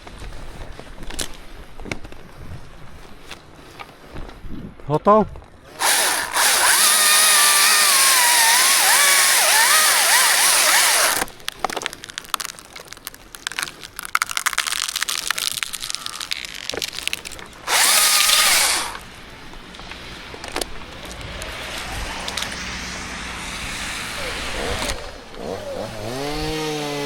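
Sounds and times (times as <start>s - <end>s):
chainsaw cutting into wood: 5.7s - 11.4s, 17.6s - 19.1s, 21.6s - 27.0s
wood cracking and snapping: 5.7s - 19.1s.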